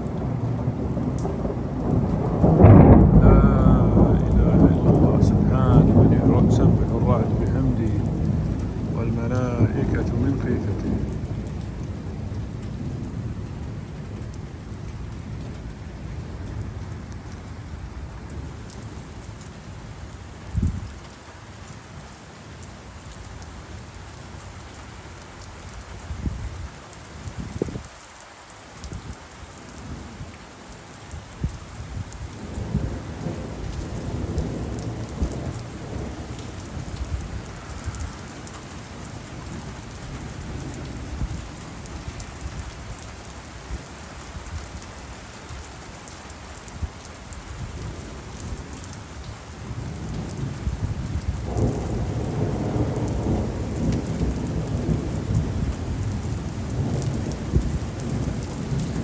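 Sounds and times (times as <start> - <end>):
rolling thunder: 0.0 - 17.1, 20.5 - 20.9, 31.4 - 43.0, 49.6 - 59.0
steady rain falling: 0.0 - 59.0.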